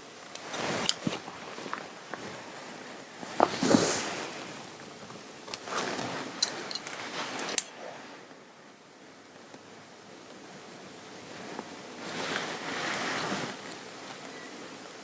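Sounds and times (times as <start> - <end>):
fabric rustling: 0.2 - 8.4, 11.3 - 14.1.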